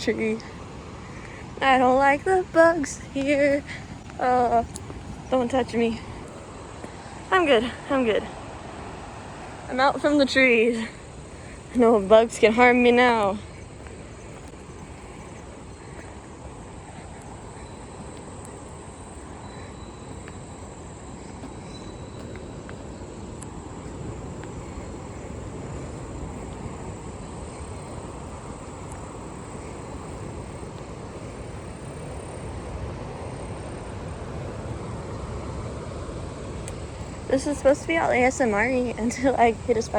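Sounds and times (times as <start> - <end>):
insects chirring: 0.0 - 39.9
low outdoor rumble: 0.0 - 39.9
faint ticks: 3.0 - 5.3, 6.2 - 7.2, 13.0 - 31.0, 36.6 - 37.4.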